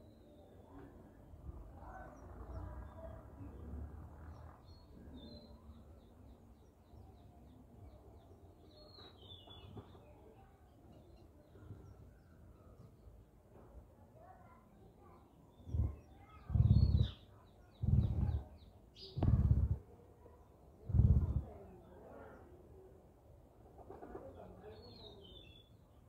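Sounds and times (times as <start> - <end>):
faint high bird chirps: 15.5 - 19.8
low rumble: 15.7 - 17.1, 17.8 - 18.4, 19.2 - 19.8, 20.9 - 21.5.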